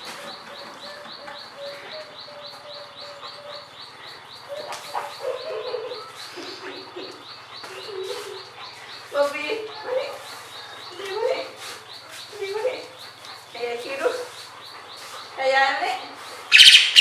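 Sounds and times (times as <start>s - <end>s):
bird high chirp: 0.2s - 15.4s, 16.2s - 17.0s
lower drawn-out bird calls: 16.3s - 17.0s.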